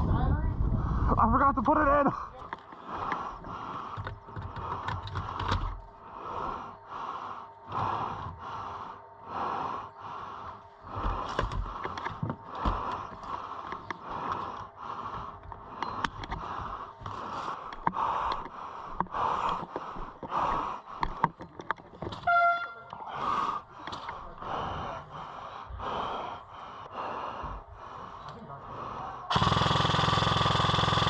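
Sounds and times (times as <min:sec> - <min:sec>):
heavy rhythmic breathing: 0:02.1 - 0:31.0
short horn-like tone: 0:22.2 - 0:23.0.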